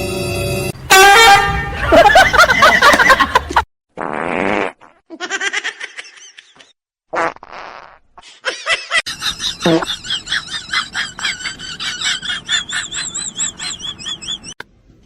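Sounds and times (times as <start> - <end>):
people laughing: 1.6 - 3.6, 8.5 - 14.6
buzzy fart-like noise: 4.0 - 5.0, 7.1 - 8.1.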